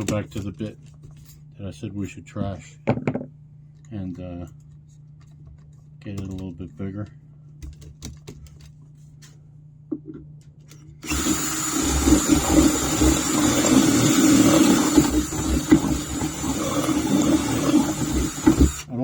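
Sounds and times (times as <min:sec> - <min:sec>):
power drill boring into metal: 0:11.0 - 0:19.0.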